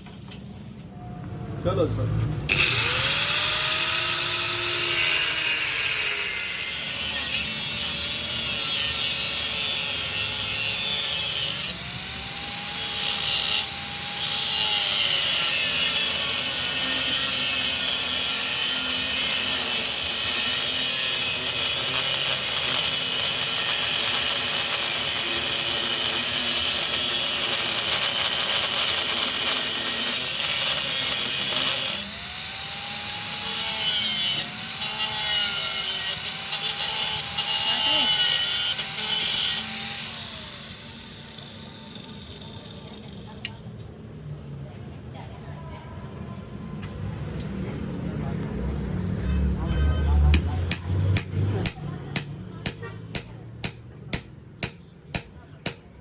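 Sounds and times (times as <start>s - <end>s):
power tool cutting steel: 2.5s - 43.6s.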